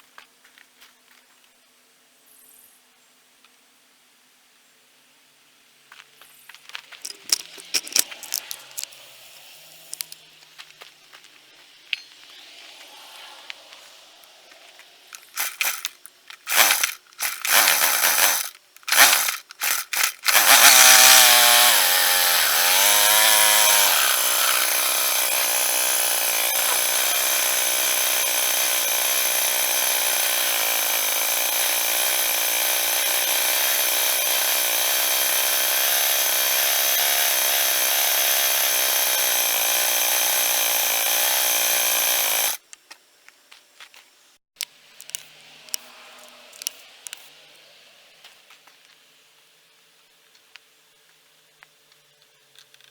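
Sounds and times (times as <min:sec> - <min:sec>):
trimmer engine running: 0:07.1 - 0:09.0, 0:09.7 - 0:10.2, 0:15.1 - 0:42.6.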